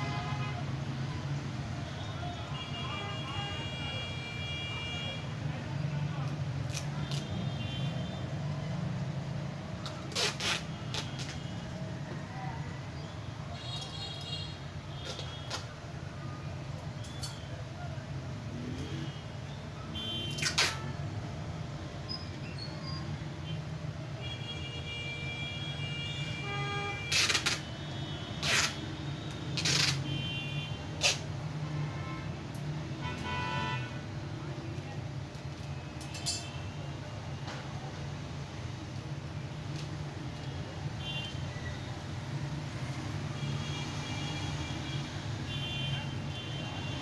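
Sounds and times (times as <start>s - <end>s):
low traffic hum: 0.0s - 47.0s
packing tape rasping: 9.8s - 11.5s, 27.1s - 27.7s, 28.4s - 28.8s, 29.6s - 30.1s.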